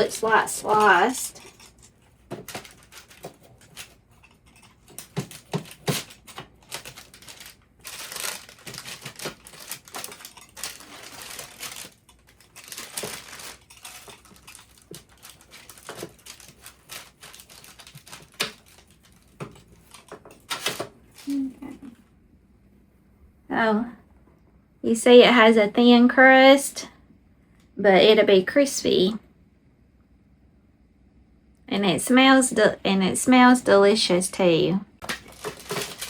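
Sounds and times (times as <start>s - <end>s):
blade scratching through crust: 0.0s - 19.2s.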